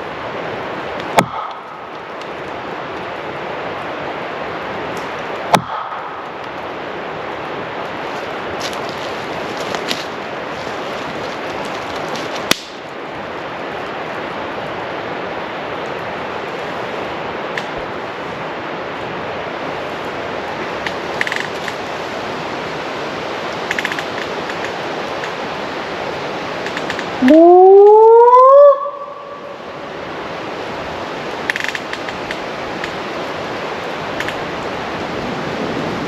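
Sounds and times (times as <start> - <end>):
wind rushing through forest: 0.0 - 36.0
loud sharp crack: 1.0 - 3.1, 5.0 - 6.7, 11.6 - 12.9.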